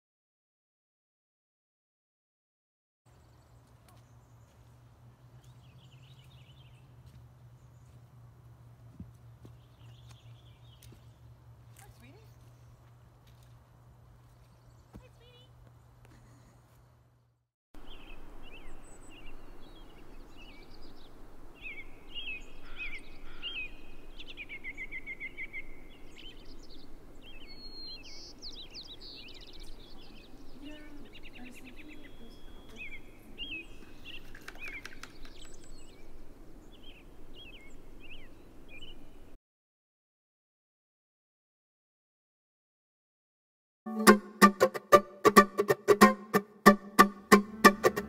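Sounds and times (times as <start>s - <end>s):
wild birds singing and calling: 3.1s - 8.0s, 17.8s - 39.4s
low background hiss: 17.8s - 34.2s
bird trill: 17.8s - 36.2s.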